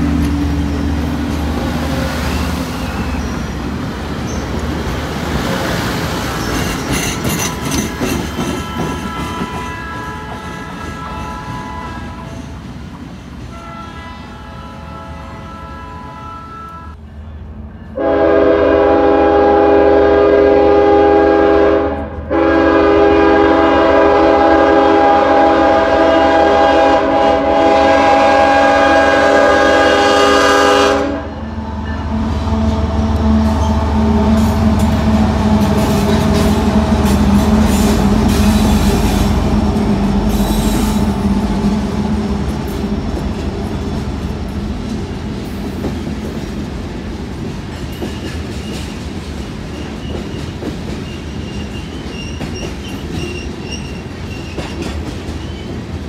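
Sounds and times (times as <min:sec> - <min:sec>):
train wheels clicking over joints: 0:00.0 - 0:13.6, 0:33.4 - 0:56.0
locomotive engine rumbling: 0:00.0 - 0:13.8, 0:16.9 - 0:56.0
locomotive air horn blasts: 0:08.6 - 0:12.5, 0:13.5 - 0:17.0, 0:18.0 - 0:35.6.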